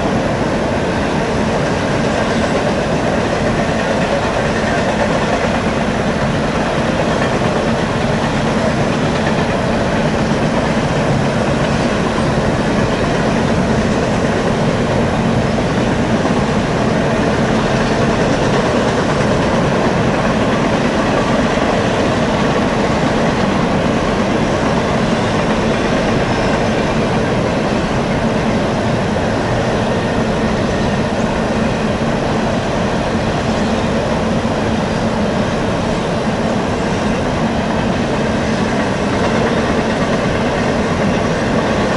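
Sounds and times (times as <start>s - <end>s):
train rolling over rails: 0.0s - 41.9s.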